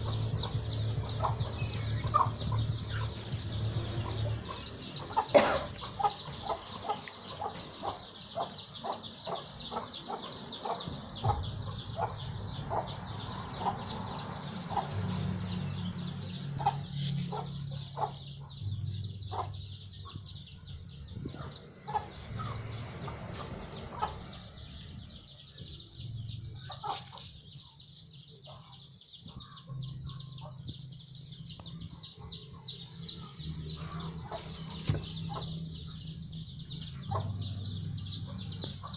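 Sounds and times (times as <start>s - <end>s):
hens clucking: 0.0s - 15.4s, 26.5s - 27.6s.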